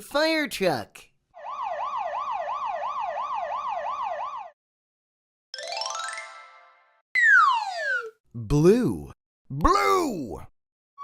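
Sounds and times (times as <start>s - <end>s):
cartoon siren yelping: 1.4s - 4.6s, 7.2s - 8.2s
rising whistle-like slide: 7.2s - 8.2s.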